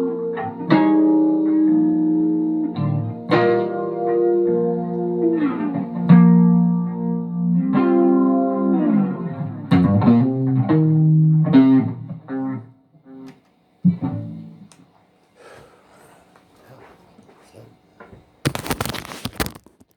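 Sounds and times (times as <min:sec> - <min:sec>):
guitar notes sliding down: 0:00.0 - 0:13.2.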